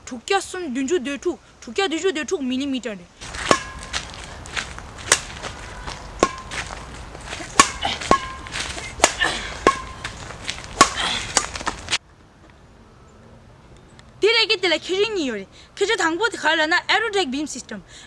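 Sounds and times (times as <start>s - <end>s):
sharp taps: 3.2s - 12.0s.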